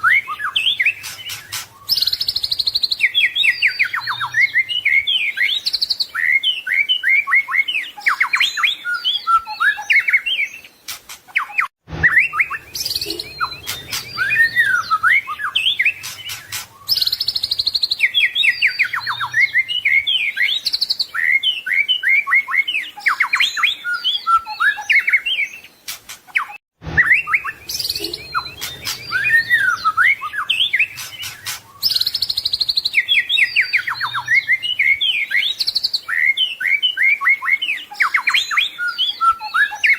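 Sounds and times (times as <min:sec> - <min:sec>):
bird singing whistled phrases: 0:00.0 - 0:10.7, 0:11.3 - 0:25.7, 0:26.4 - 0:39.9.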